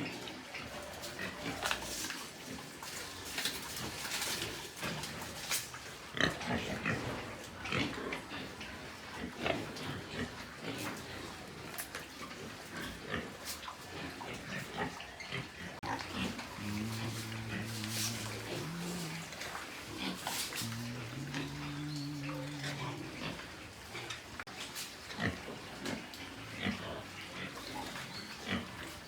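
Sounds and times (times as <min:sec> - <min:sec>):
pigs grunting: 0:14.0 - 0:24.5, 0:25.2 - 0:29.0.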